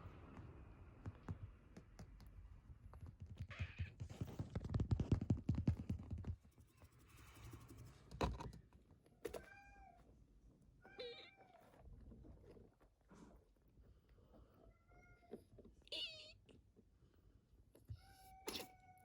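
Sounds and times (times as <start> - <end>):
kitten meowing: 14.9 - 16.4.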